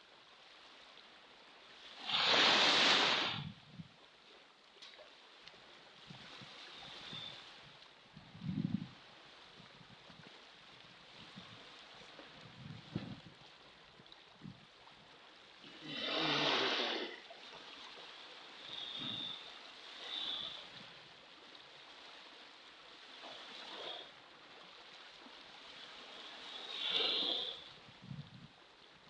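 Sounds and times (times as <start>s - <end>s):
ocean waves washing in: 1.7s - 3.6s, 15.6s - 21.2s.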